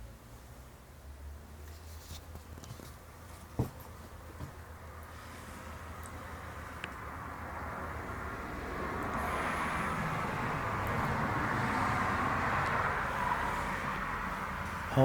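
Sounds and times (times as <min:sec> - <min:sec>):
vehicle passing: 0:04.5 - 0:15.0.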